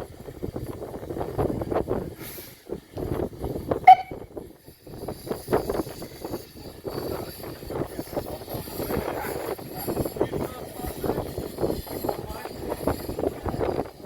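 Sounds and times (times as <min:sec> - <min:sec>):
sharp high-pitched sound: 0:03.9 - 0:04.2
small locomotive running: 0:04.4 - 0:14.0.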